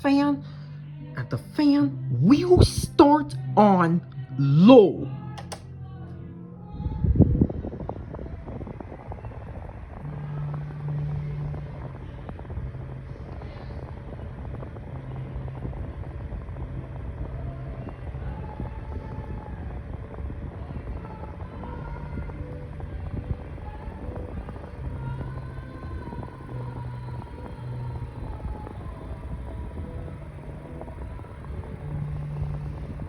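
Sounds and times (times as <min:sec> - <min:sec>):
fan switch clunk: 0:05.4 - 0:05.6
rumble of moving air: 0:05.9 - 0:33.0
box fan motor hum: 0:19.4 - 0:33.0.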